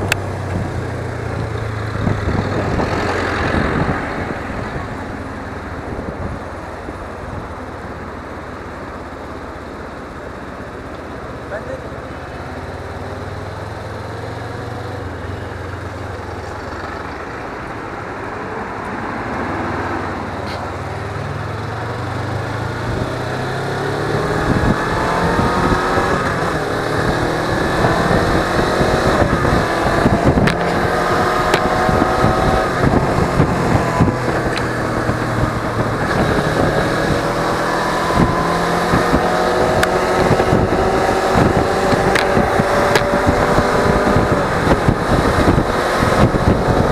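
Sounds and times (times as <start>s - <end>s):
wind buffeting microphone: 0.0s - 8.4s, 16.1s - 46.9s
motorcycle engine accelerating: 0.0s - 46.9s.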